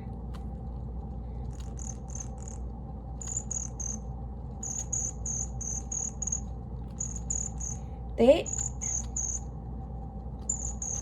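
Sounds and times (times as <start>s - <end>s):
steady low hum: 0.0s - 11.0s
bird chirping: 1.6s - 2.6s, 3.2s - 4.0s, 4.6s - 9.5s, 10.5s - 11.0s.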